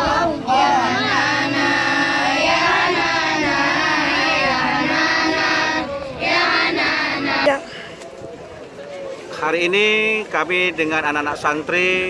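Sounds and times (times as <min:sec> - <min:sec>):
young voices singing: 0:00.0 - 0:07.6.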